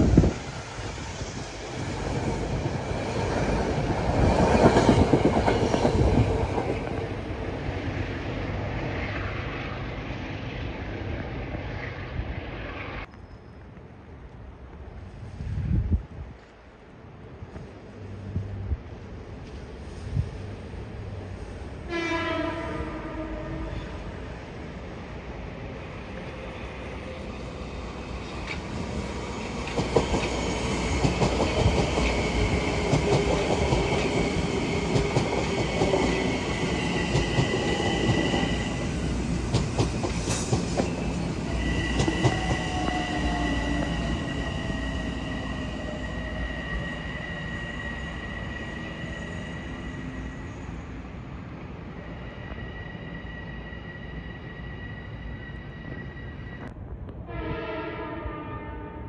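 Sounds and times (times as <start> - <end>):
train wheels clacking: 1.3 - 7.2, 28.4 - 46.0
train wheel squeal: 12.7 - 13.8, 26.2 - 51.2, 51.8 - 56.7.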